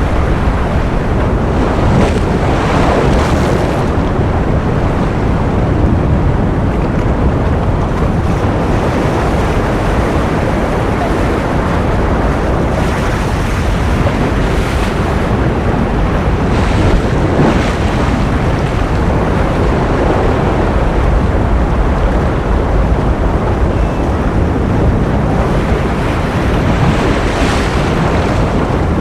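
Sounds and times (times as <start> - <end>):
ocean surf rushing: 0.0 - 29.0.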